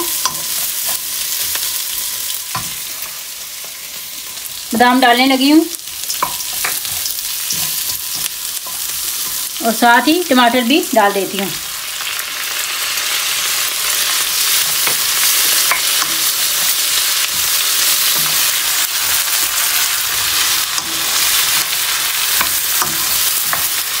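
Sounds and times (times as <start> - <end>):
spatula tapping and scraping pan: 0.0 - 1.7, 2.5 - 4.5, 6.0 - 9.5, 14.5 - 19.1, 20.2 - 24.0
vegetables sizzling in hot oil: 0.0 - 24.0.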